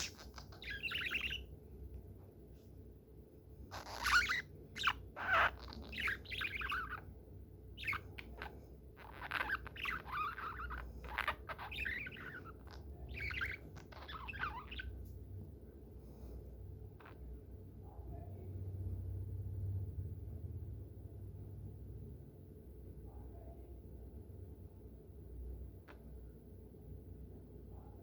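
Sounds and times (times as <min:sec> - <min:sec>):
budgerigar chattering and chirping: 0:00.0 - 0:01.5, 0:03.7 - 0:07.1, 0:07.8 - 0:15.0.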